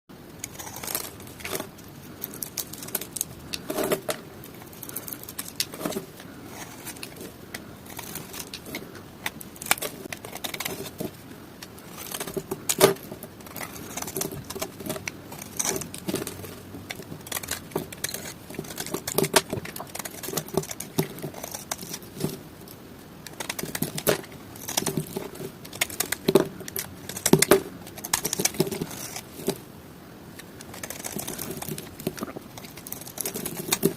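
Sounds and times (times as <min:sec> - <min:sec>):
knife cutting dry soap: 0:00.5 - 0:01.7, 0:11.9 - 0:22.4.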